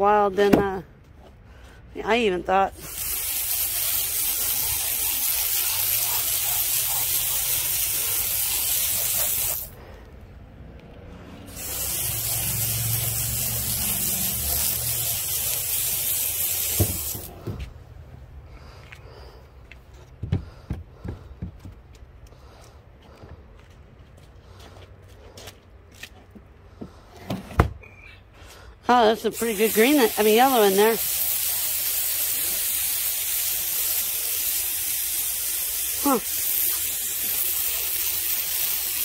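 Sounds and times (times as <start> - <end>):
hissing jet: 2.8 - 9.8, 11.5 - 17.4, 29.3 - 39.0.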